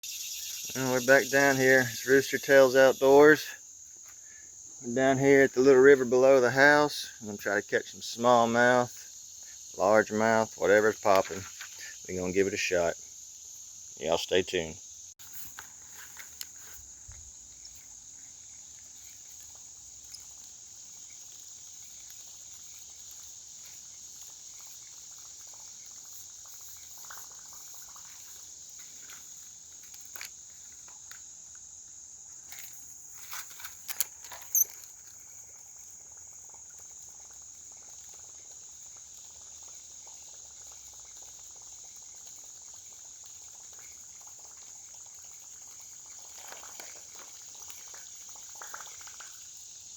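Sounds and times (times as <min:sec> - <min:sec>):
crickets chirping: 0:00.0 - 0:49.9.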